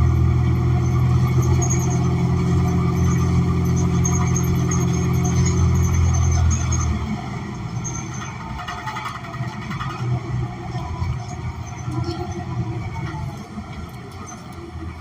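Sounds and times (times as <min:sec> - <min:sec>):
bus engine drone: 0:00.0 - 0:15.0
road noise rumble: 0:00.0 - 0:15.0
rattles: 0:07.8 - 0:14.5.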